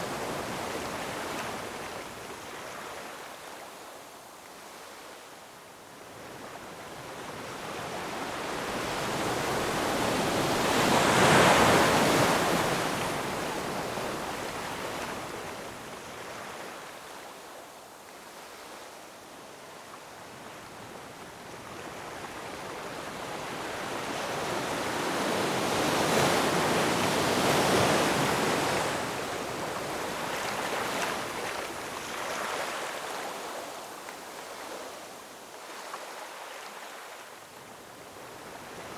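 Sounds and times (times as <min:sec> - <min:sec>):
ocean waves breaking over rocks: 0:08.2 - 0:15.4.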